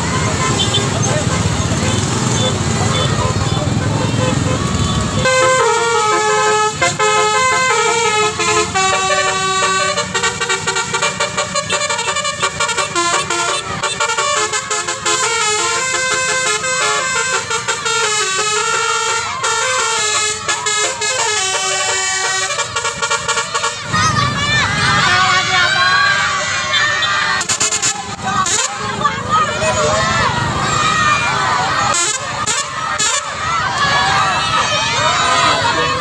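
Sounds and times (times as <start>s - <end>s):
bus air horn playing a fast tune: 0.3s - 24.0s, 26.8s - 29.0s, 31.7s - 33.5s.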